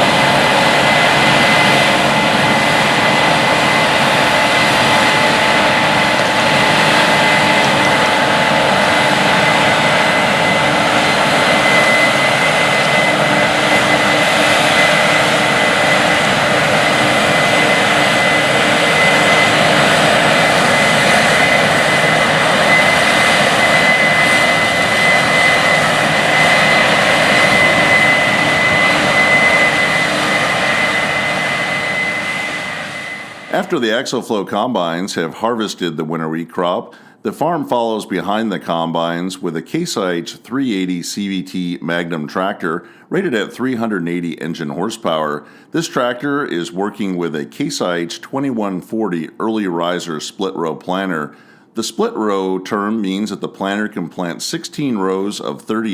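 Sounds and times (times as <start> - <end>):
heavy farm machinery running: 0.0 - 33.9.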